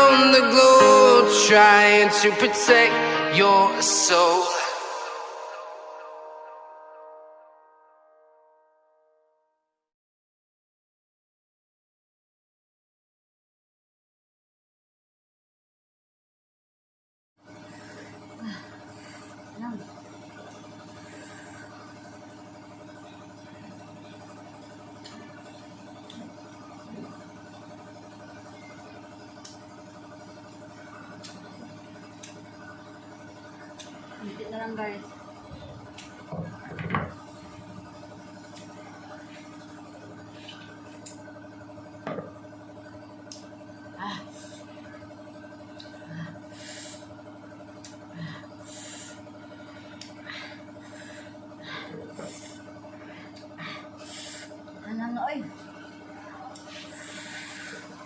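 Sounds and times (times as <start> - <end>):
motor humming: 17.5 - 58.0.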